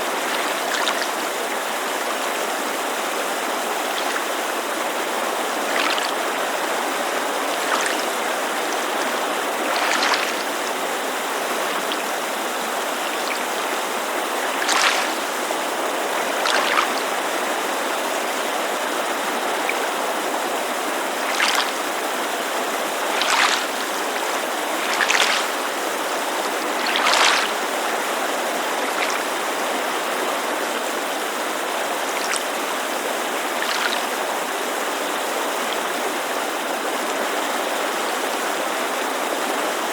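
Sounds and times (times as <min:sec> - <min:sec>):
creek rushing: 0:00.0 - 0:39.9
water lapping on shore: 0:00.0 - 0:39.9.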